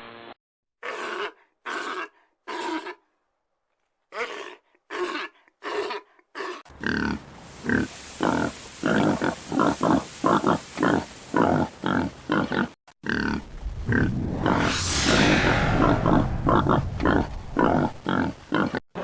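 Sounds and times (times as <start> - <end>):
background hiss: 7.1 - 12.5.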